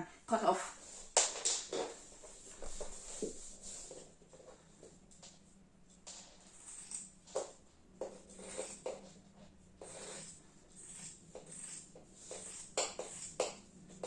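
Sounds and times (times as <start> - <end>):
faint steady hum: 0.0 - 14.0
scissors snipping fabric: 9.8 - 13.6.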